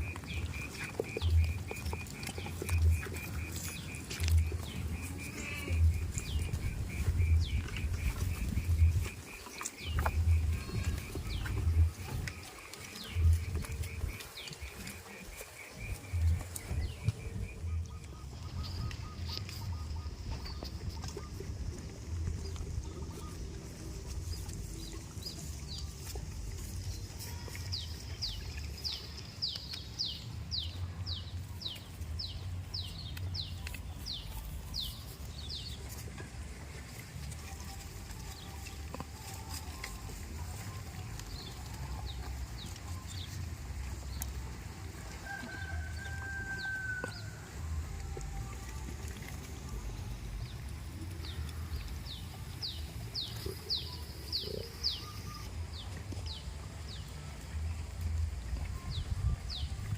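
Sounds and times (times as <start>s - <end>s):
steady low rumble: 0.0s - 38.5s.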